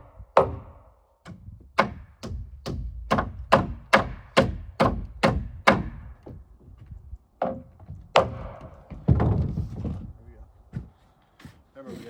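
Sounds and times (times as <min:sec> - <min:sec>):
hammer striking wooden board: 0:00.4 - 0:06.4, 0:07.4 - 0:09.4.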